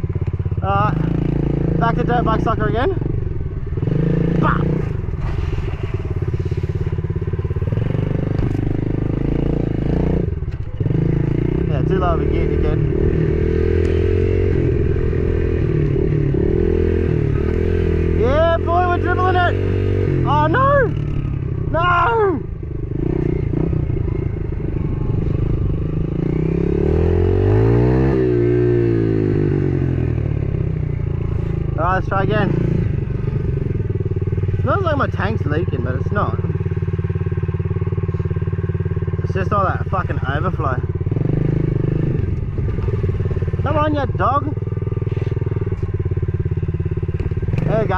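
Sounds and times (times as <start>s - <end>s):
small motorbike engine revving: 0.6s - 39.1s, 40.1s - 47.9s.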